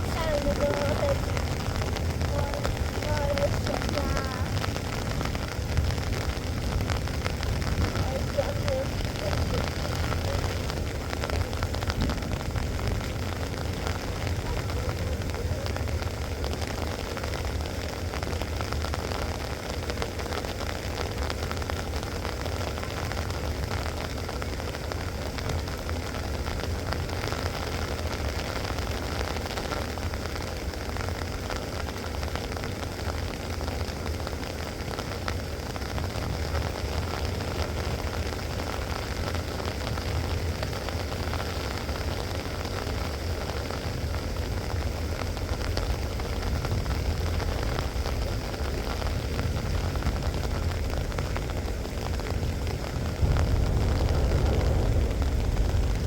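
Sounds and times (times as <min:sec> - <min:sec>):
low rumble: 0:00.0 - 0:19.4, 0:35.8 - 0:56.0
rain pattering: 0:00.0 - 0:56.0.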